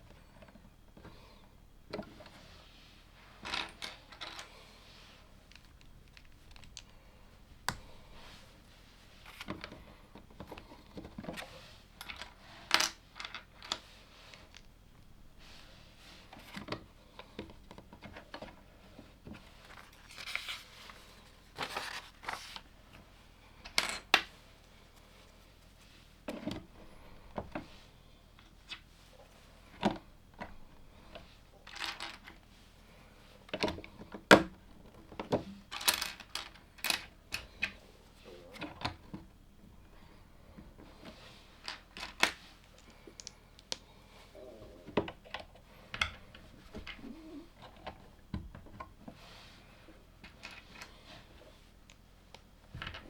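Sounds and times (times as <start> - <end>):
plastic bricks clicking together: 42.1 - 43.8.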